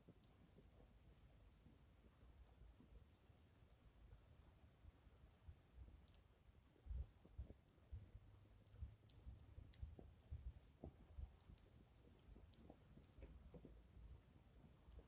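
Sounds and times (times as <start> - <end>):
wood fire crackling: 5.0 - 15.0.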